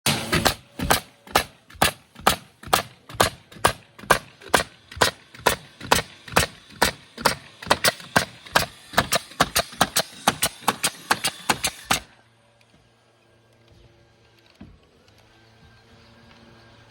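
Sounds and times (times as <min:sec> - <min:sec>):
hammer strikes: 0:00.1 - 0:12.1.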